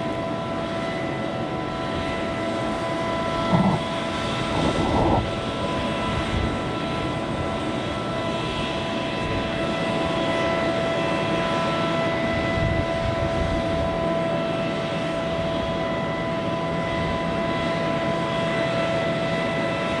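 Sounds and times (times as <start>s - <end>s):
jet engines whining: 1.2s - 6.0s
constant rushing noise: 3.3s - 5.4s.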